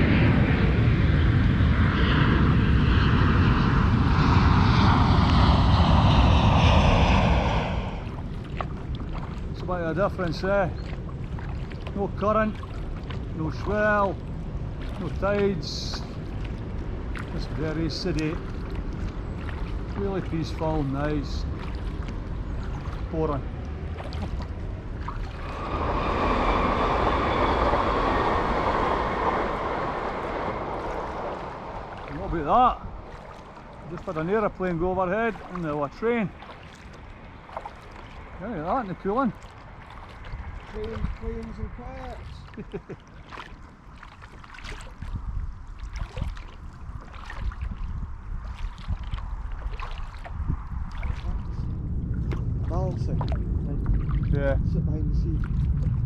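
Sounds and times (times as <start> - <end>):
passing vehicle rushing: 0.0 - 8.3, 25.3 - 34.9
low rumble: 0.0 - 56.0
paddle splashing in water: 8.0 - 9.6, 10.7 - 13.8, 14.7 - 26.6, 29.4 - 51.5
faint high whine: 22.4 - 36.6.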